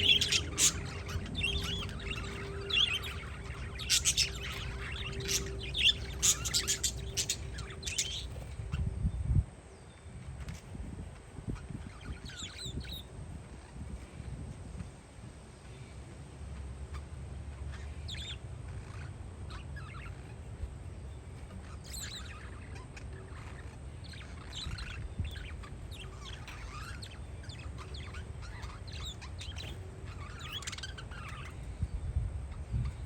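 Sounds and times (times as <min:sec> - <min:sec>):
parakeets chirping: 0:00.0 - 0:08.8, 0:10.3 - 0:14.4, 0:16.4 - 0:33.0
wind rumble on microphone: 0:00.0 - 0:33.0.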